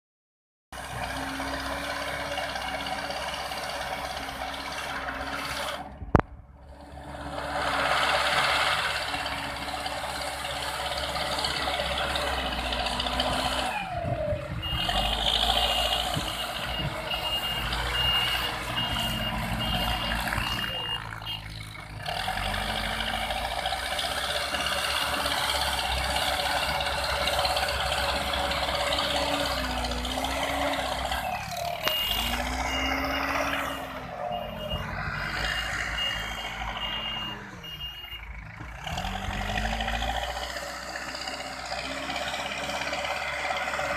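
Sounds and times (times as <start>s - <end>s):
heavy construction machinery running: 0.8s - 43.9s
reversing alarm beeps: 14.6s - 21.6s, 31.8s - 38.3s.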